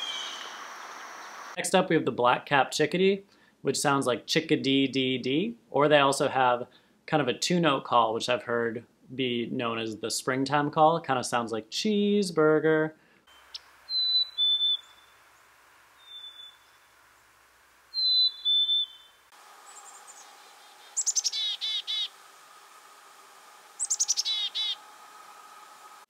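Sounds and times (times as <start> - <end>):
chickadee calls: 0.0 - 1.6, 13.4 - 15.1, 16.0 - 16.8, 17.9 - 22.6, 23.6 - 25.0.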